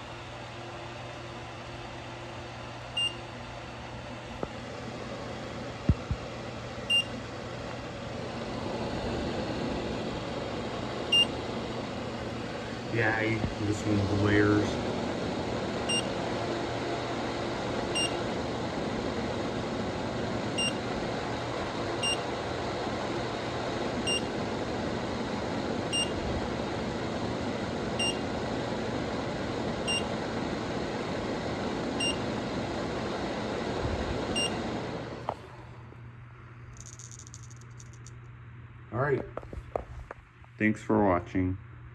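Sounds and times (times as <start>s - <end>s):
exhaust fan rushing air: 0.0s - 36.2s
low hum: 4.4s - 35.6s.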